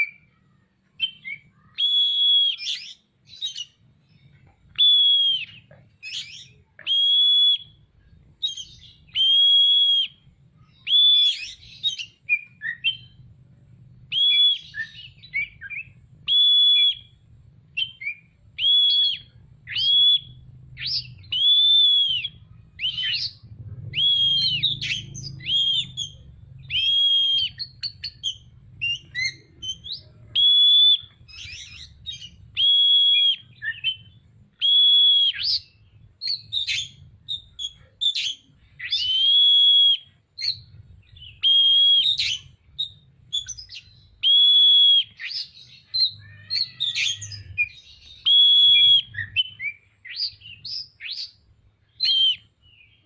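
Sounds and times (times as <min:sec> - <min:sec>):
bird singing whistled notes: 0:00.0 - 0:13.3, 0:14.0 - 0:53.0.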